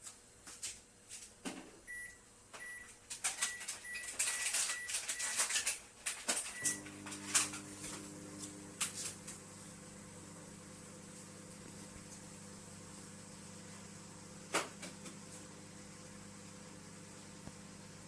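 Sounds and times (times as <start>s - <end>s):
microwave oven humming: 6.3s - 18.0s.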